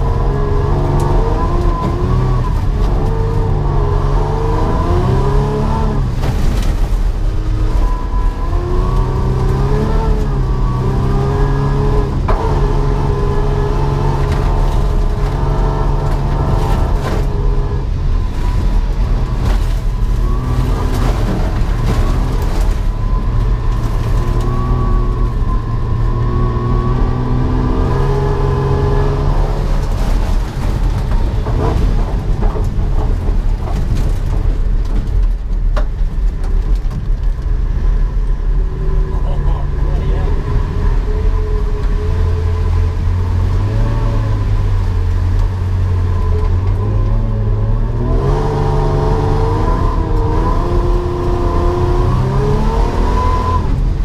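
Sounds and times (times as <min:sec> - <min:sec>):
car engine revving: 0:00.0 - 0:34.4, 0:37.7 - 0:54.0.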